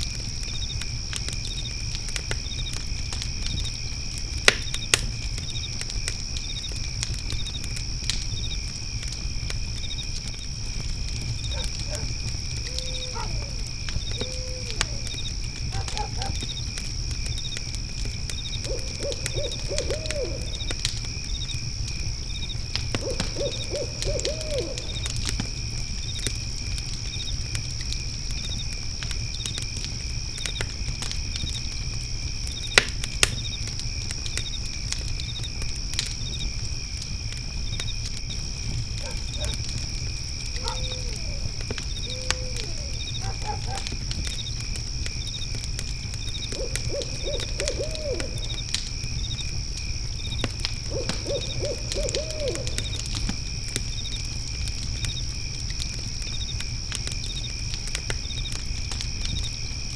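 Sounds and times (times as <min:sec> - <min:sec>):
crickets chirring: 0:00.0 - 0:59.9
wood fire crackling: 0:00.0 - 0:59.9
owl hooting: 0:12.7 - 0:15.1, 0:18.6 - 0:20.7, 0:23.0 - 0:25.1, 0:40.6 - 0:43.8, 0:46.5 - 0:48.6, 0:50.9 - 0:53.0.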